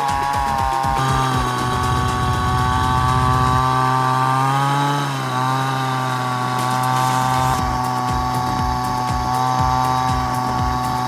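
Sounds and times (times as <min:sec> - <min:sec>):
small engine running: 0:00.0 - 0:11.0
irregular low thumps: 0:00.4 - 0:04.2, 0:07.6 - 0:11.0.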